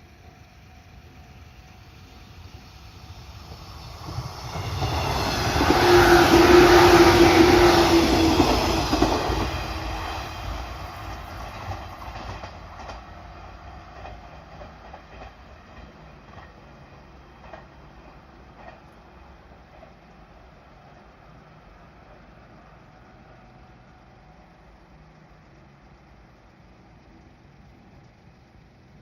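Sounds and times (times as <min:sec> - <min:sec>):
steady tone: 0:00.0 - 0:12.1
train passing: 0:00.0 - 0:29.0.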